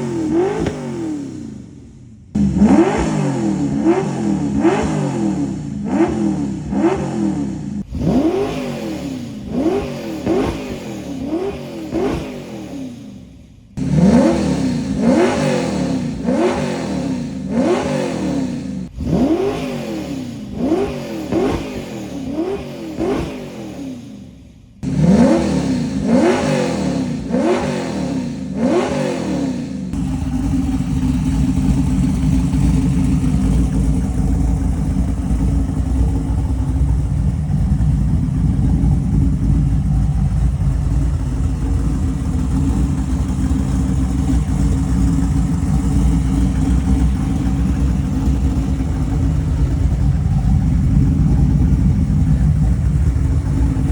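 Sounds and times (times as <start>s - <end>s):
car engine idling: 0.0s - 53.9s
car engine revving: 0.0s - 53.9s.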